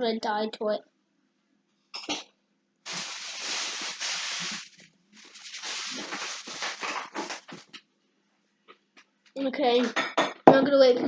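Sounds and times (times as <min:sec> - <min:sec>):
foam fizzing: 0:02.9 - 0:07.6.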